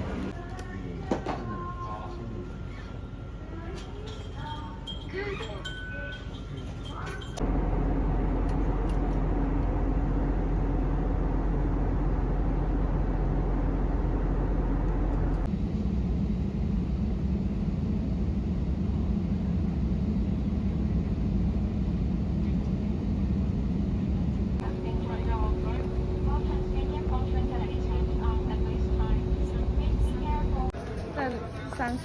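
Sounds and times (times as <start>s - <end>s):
vehicle rumble: 7.3s - 30.8s.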